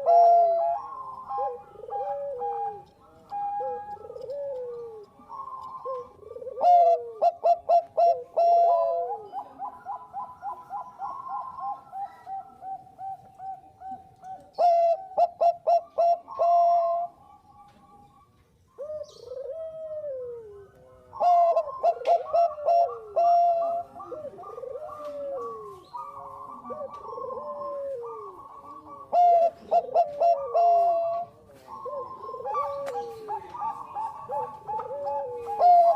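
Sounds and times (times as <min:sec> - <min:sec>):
dove cooing: 0:00.0 - 0:35.9.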